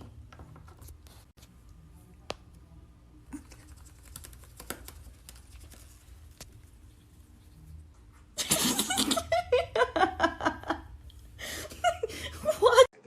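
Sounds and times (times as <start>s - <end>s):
faint clicking and scratching: 3.2s - 8.4s.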